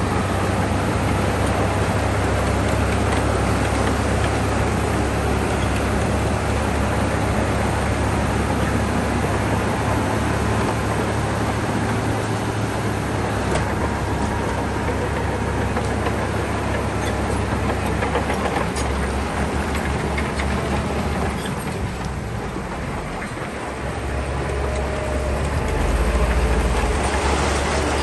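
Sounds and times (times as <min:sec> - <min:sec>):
bulldozer diesel engine running: 0:00.0 - 0:28.0
clanks and clicks: 0:13.5 - 0:23.8.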